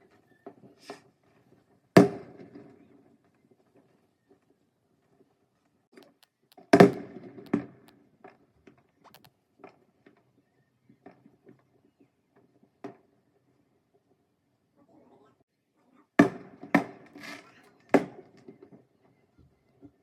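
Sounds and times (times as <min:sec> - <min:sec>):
faint pops and crackles: 0:06.0 - 0:07.9, 0:09.1 - 0:09.3.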